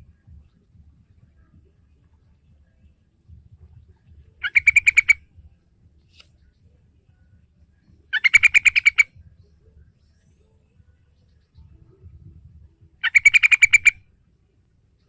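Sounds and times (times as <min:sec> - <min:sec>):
bulbul rapid repeated calls: 0:03.7 - 0:12.0, 0:12.7 - 0:14.1.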